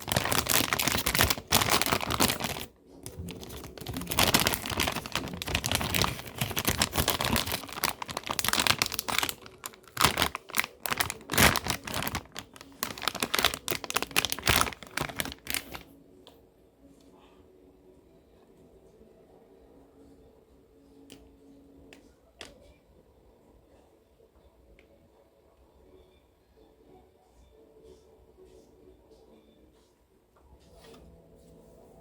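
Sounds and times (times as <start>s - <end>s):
plastic packaging crinkling: 0.0s - 15.8s.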